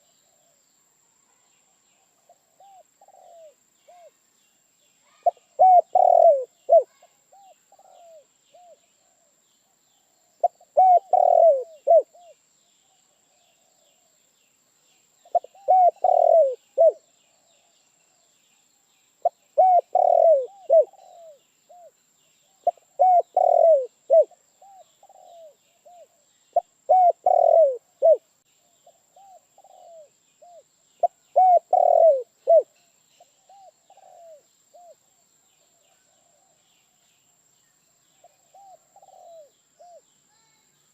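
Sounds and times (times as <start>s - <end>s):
small birds chirping faintly: 0.0s - 40.9s
dove cooing: 2.3s - 4.1s, 5.2s - 9.3s, 10.4s - 12.4s, 15.3s - 17.0s, 19.2s - 21.9s, 22.6s - 28.2s, 28.8s - 32.7s, 33.4s - 35.0s, 38.3s - 40.0s.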